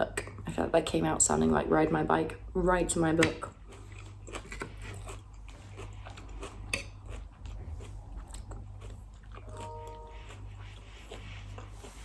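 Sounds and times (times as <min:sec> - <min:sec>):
chewing and crunching salad: 0:00.0 - 0:12.0
short hum: 0:09.4 - 0:10.7.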